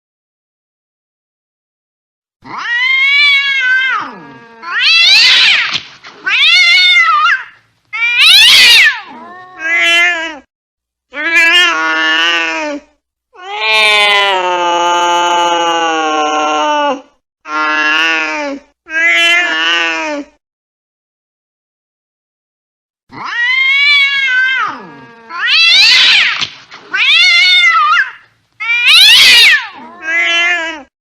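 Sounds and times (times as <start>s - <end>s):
angry cat yowling: 2.4s - 10.5s, 11.2s - 12.8s, 13.4s - 20.3s, 23.1s - 31.0s.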